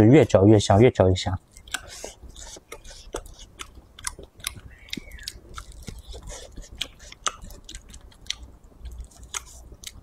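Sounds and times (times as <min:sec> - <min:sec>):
chewing with wet clicks: 0:01.4 - 0:10.0.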